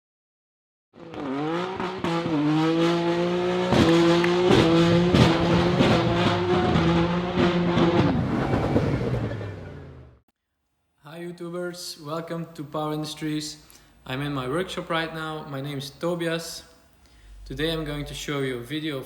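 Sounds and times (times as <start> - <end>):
car engine revving high: 1.0 - 10.1.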